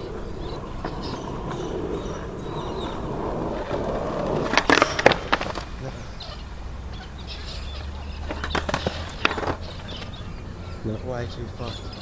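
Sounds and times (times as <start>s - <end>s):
skateboard clacking on ground: 0.0s - 6.4s, 8.2s - 10.2s
skateboard wheels rolling on concrete: 0.0s - 12.0s.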